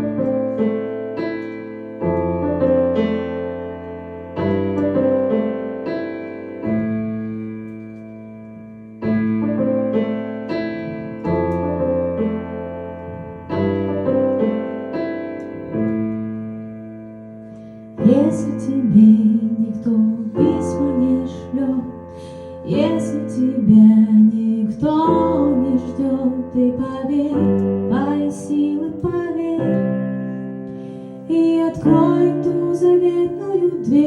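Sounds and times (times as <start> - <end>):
piano chords: 0.0 - 34.0.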